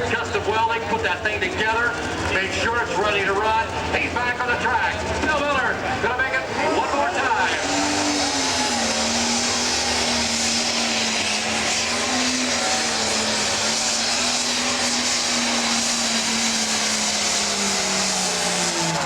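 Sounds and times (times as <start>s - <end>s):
diesel engine under load: 0.0s - 19.0s.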